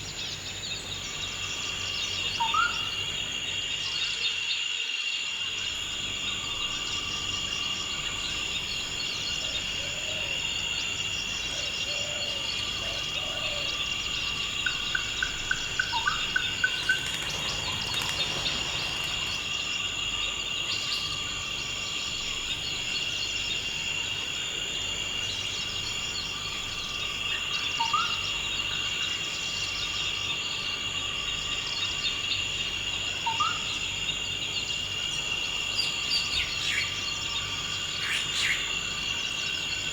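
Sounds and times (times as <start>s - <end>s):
insects trilling: 0.0s - 39.9s
birds calling: 8.7s - 21.2s.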